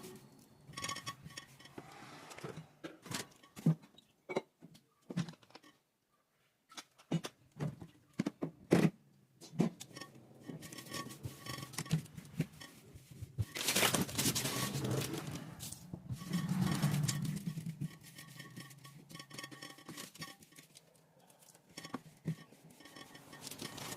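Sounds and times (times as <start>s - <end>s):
items being handled clattering: 0.0s - 5.9s, 6.7s - 23.9s
loud rubbing noise: 14.2s - 19.1s.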